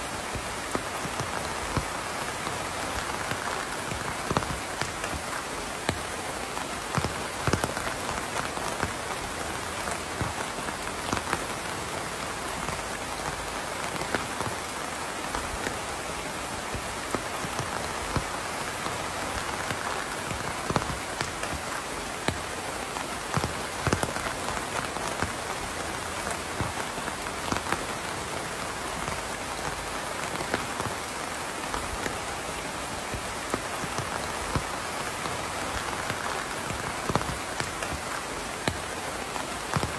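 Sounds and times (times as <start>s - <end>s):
raindrops pattering on a surface: 0.0s - 39.9s
steady rain falling: 0.0s - 39.9s.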